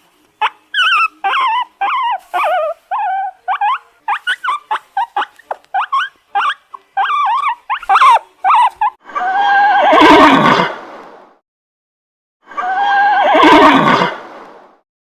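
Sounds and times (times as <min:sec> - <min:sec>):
high whining yelps: 0:00.4 - 0:10.6, 0:12.5 - 0:14.1
horse whinny: 0:09.2 - 0:10.7, 0:12.6 - 0:14.2.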